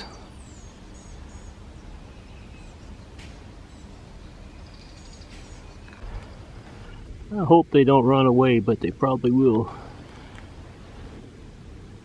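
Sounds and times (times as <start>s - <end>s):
faint high bird chirps: 0.0s - 6.5s
steady low rumble: 0.0s - 12.0s.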